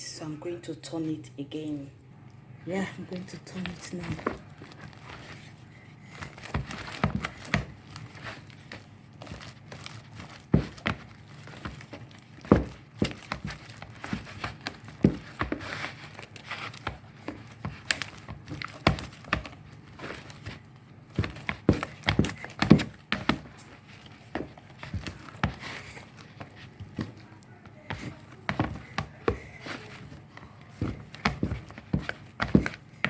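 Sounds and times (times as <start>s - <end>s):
soft crackling of dough: 2.1s - 33.0s.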